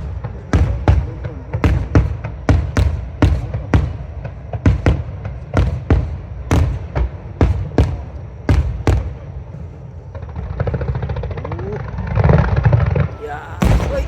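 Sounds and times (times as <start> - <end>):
fireworks bangs: 0.0 - 14.0
low rumble after bangs: 13.6 - 14.0.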